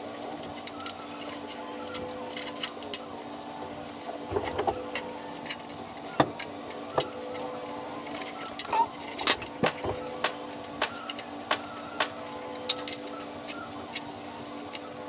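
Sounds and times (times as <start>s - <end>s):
steady machine hum: 8.8s - 12.9s.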